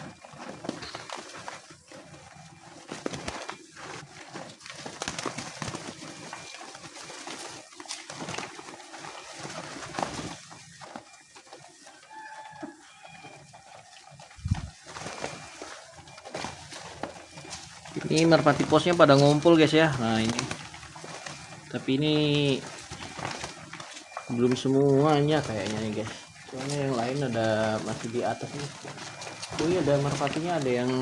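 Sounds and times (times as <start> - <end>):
pigeons calling: 0.0 - 31.0
clicks and scuffs: 12.6 - 31.0.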